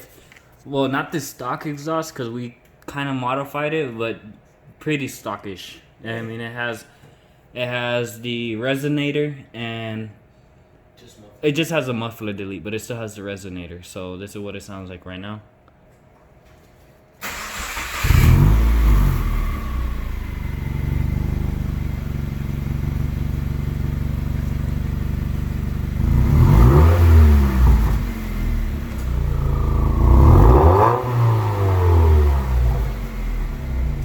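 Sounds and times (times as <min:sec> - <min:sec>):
car engine starting and revving: 0:17.2 - 0:34.0.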